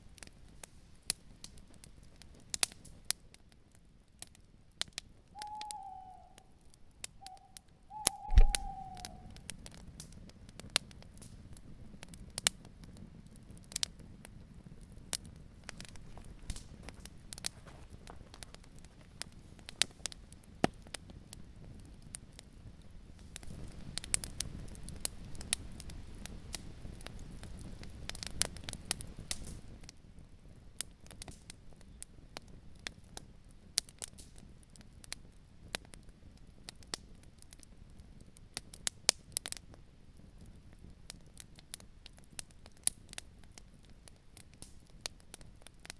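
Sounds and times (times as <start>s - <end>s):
campfire crackling and popping: 0.0s - 45.9s
owl hooting: 5.4s - 9.5s
low wind rumble: 7.2s - 9.6s
thump: 8.3s - 8.7s.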